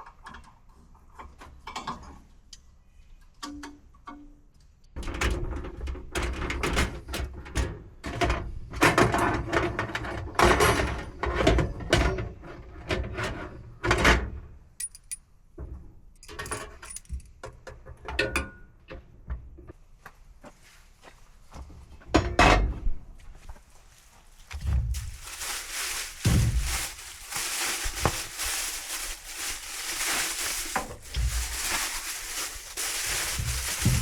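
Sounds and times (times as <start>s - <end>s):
objects clattering and scraping: 24.5s - 34.0s.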